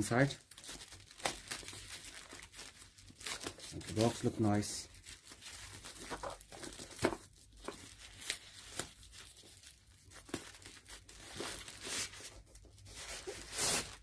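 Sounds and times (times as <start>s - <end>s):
packaging crinkling and tearing: 0.0s - 14.0s.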